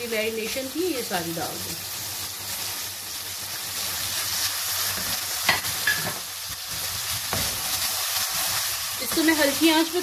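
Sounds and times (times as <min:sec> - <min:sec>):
chicken sizzling in a wok: 0:00.0 - 0:10.0
spatula tapping wok: 0:04.9 - 0:10.0.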